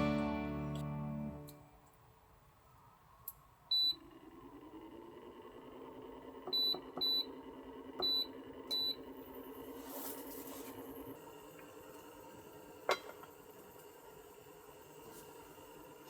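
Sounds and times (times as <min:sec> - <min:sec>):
appliance beeping: 0:06.5 - 0:07.4, 0:08.0 - 0:09.1.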